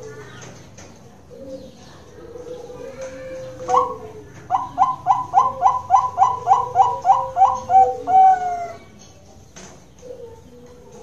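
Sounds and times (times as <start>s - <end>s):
dove cooing: 1.3s - 8.9s, 10.0s - 11.0s.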